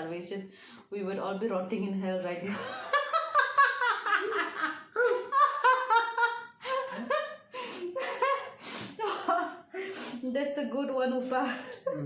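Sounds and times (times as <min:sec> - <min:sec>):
people laughing: 0:02.5 - 0:07.3.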